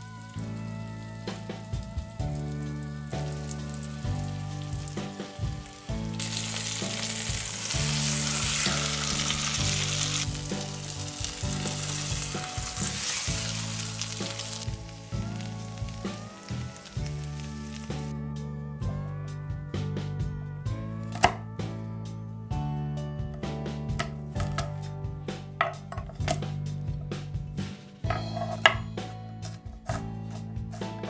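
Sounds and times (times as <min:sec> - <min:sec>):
chicken sizzling in a frying pan: 0:00.0 - 0:18.1
background music: 0:00.0 - 0:31.0.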